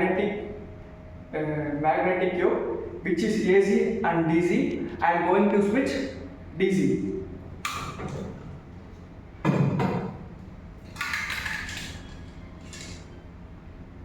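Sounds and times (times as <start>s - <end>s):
steady low hum: 0.0s - 14.0s
knock: 9.5s - 10.2s.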